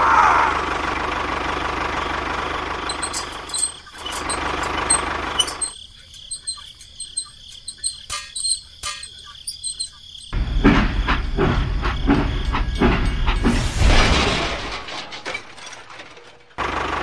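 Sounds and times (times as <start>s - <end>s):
crickets chirping: 2.6s - 13.8s.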